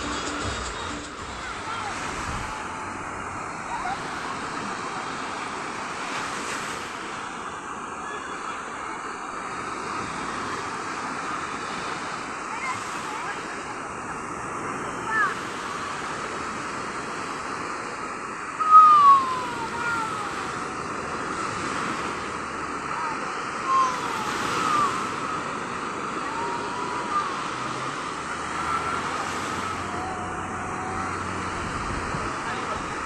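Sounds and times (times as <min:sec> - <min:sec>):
wind on the microphone: 0:00.0 - 0:05.0, 0:28.7 - 0:33.0
sea surf: 0:00.0 - 0:33.0.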